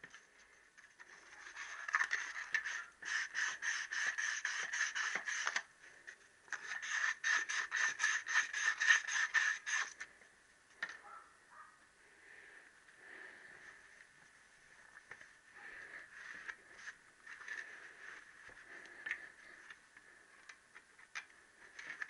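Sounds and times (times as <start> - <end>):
abrasive paper scraping metal: 1.0 - 5.7, 6.5 - 10.0.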